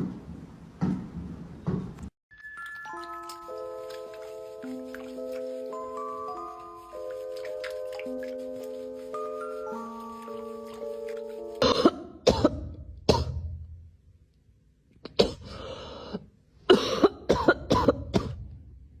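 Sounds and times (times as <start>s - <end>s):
tinkly bell-like music: 2.3s - 11.6s
person coughing: 11.6s - 13.4s, 15.1s - 15.6s, 16.7s - 18.4s.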